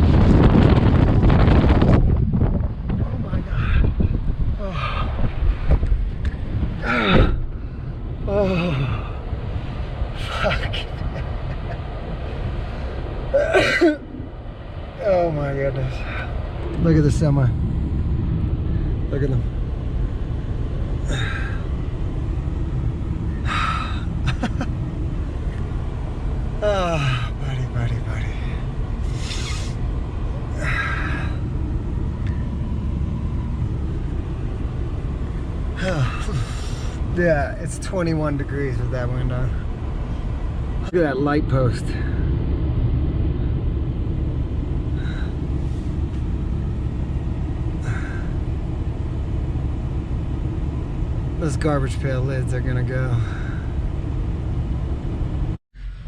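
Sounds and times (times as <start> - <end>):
gusty wind buffeting microphone: 0.0 - 13.4, 14.0 - 26.6, 27.2 - 51.4
short breathy bursts: 29.0 - 29.8.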